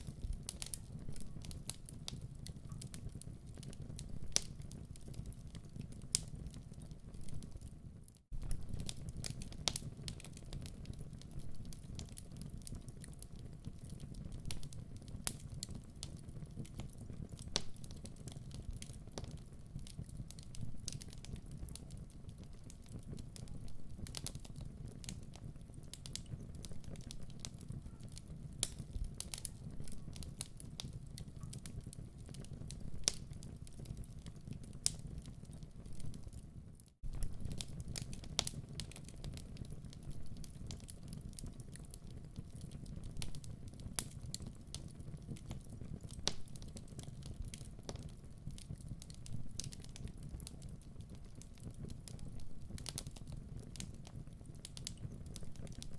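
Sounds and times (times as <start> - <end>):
low rumble of flames: 0.0 - 55.9
wood fire crackling: 0.0 - 55.9.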